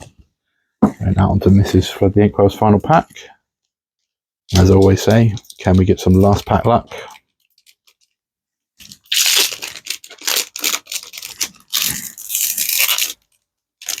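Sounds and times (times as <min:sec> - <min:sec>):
plastic wrapper tearing and crinkling: 0:04.5 - 0:08.2, 0:08.8 - 0:14.0.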